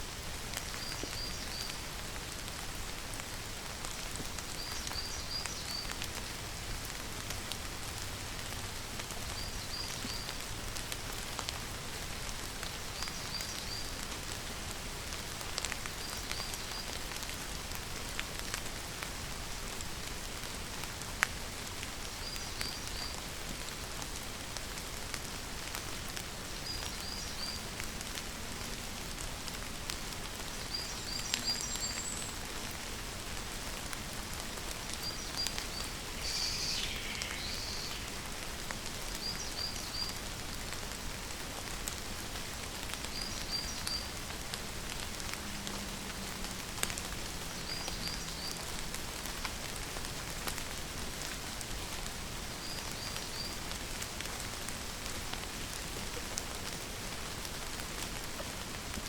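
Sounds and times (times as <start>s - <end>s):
rain falling: 0.0s - 59.0s
raindrops ticking on surfaces: 0.0s - 59.0s
bird chirping: 35.0s - 38.3s
bird falling call: 35.5s - 38.3s.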